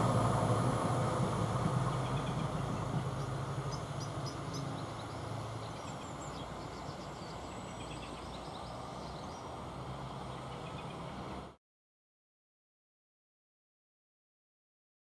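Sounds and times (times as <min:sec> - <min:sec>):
train engine hum: 0:00.0 - 0:11.6
small birds chirping: 0:01.8 - 0:11.4.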